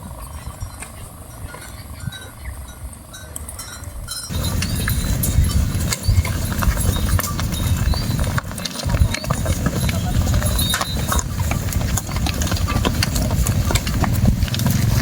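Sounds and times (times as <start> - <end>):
cattle hooves clip-clopping: 0.0 - 15.0
low rumble: 4.3 - 15.0.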